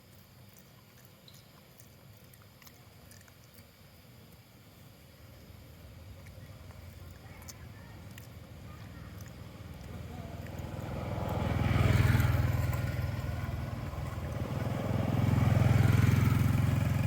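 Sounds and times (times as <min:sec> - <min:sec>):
vehicle engine passing: 0:06.6 - 0:17.0.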